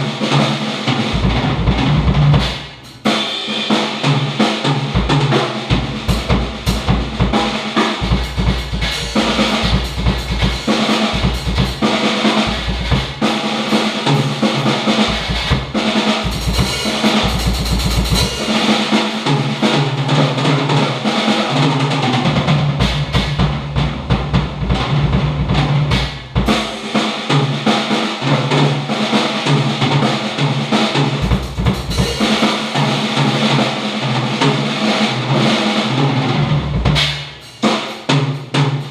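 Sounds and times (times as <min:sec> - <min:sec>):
drum kit played fast: 0:00.0 - 0:38.9.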